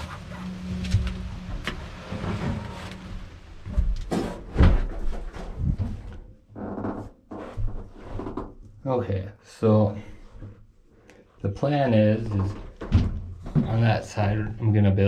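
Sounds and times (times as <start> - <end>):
knocks and thuds: 3.6 - 6.1, 12.5 - 13.9.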